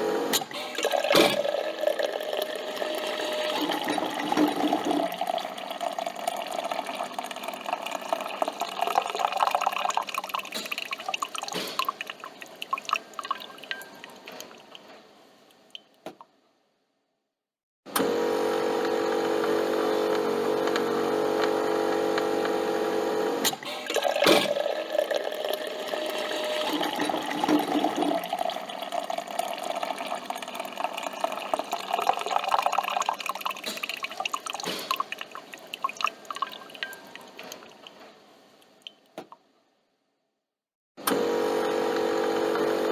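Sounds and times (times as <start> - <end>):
coffee machine pump humming: 0.0 - 13.6, 17.9 - 37.9, 41.0 - 42.9
liquid gurgling and dripping: 0.3 - 14.9, 23.5 - 39.1.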